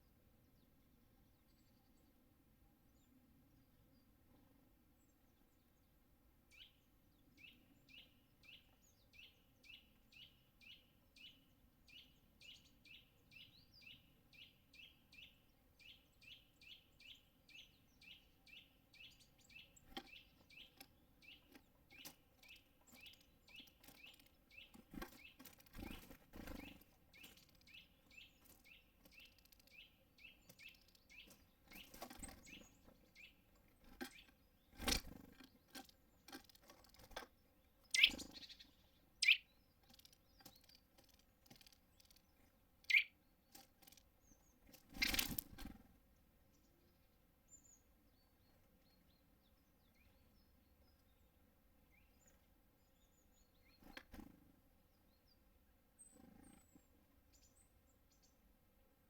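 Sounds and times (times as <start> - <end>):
small bird high call: 37.8 - 40.6, 42.8 - 43.2.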